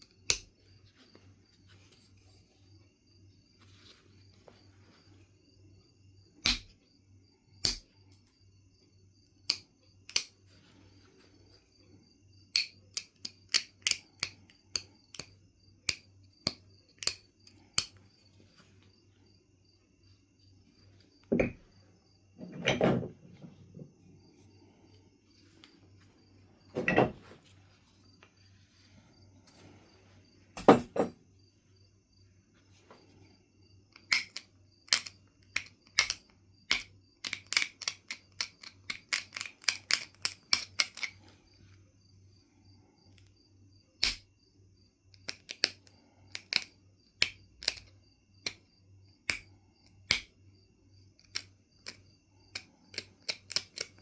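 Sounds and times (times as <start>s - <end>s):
stone knapping clicks: 0.3s - 0.5s, 6.4s - 6.8s, 7.6s - 7.9s, 9.4s - 10.3s, 12.5s - 18.0s, 33.9s - 41.2s, 44.0s - 44.3s, 45.1s - 48.6s, 49.3s - 49.5s, 50.1s - 50.4s, 51.2s - 54.0s.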